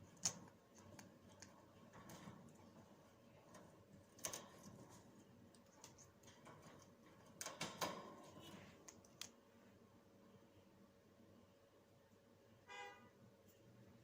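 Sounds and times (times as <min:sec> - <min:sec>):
parrot picking at leaves: 0:00.0 - 0:09.4.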